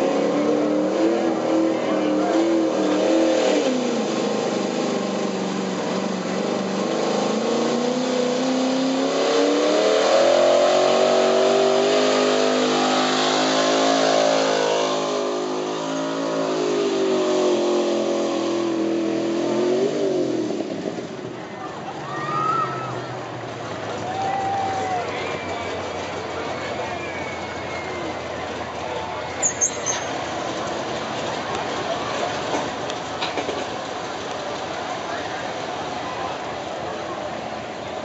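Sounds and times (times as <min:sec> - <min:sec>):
truck engine revving under load: 0:00.0 - 0:21.3.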